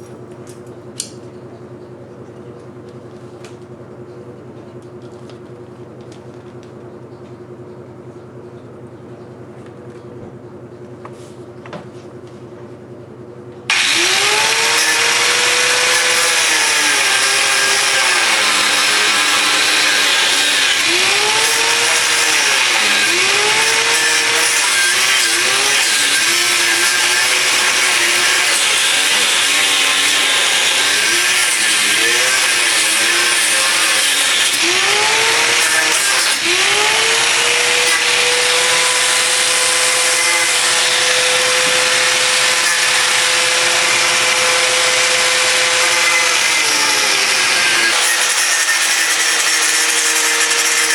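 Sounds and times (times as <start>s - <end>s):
angle grinder cutting rivets: 13.7s - 50.9s.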